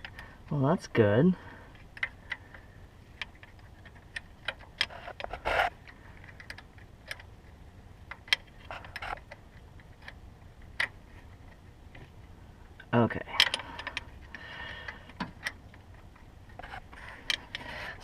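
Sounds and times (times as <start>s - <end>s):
scraping rustles: 16.5s - 18.0s.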